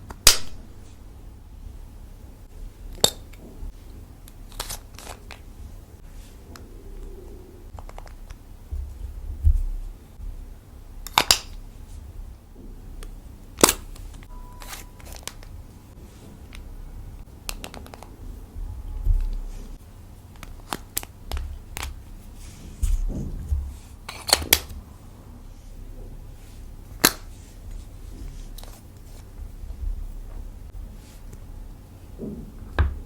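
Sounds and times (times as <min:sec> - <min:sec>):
soft low thumps: 0:08.5 - 0:10.7, 0:18.5 - 0:19.5.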